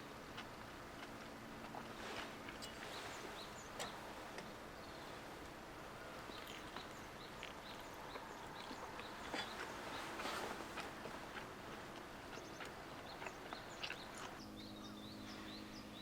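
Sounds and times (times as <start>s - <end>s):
outdoor background hiss: 0.0s - 16.0s
small birds chirping: 1.6s - 16.0s.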